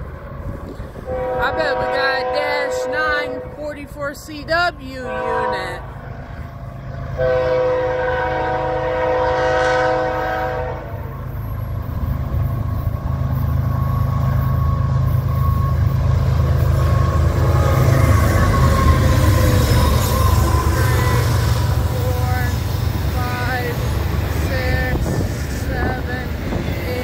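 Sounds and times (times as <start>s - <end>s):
diesel locomotive rumble: 0.0s - 27.0s
train wheels on rails: 0.0s - 27.0s
train air horn: 0.7s - 3.6s, 5.0s - 5.8s, 7.2s - 11.1s, 16.8s - 22.6s.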